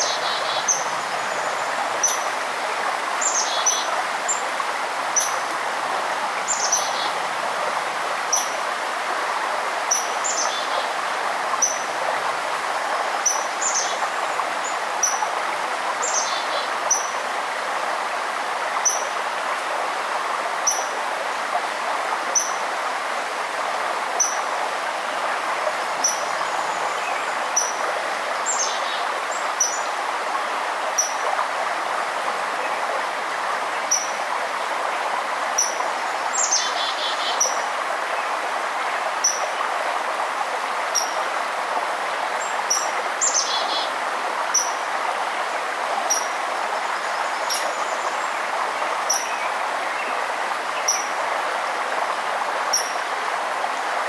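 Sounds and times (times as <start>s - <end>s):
songbird chirping: 0.0s - 2.4s, 46.0s - 51.1s
river water rushing: 0.0s - 54.0s.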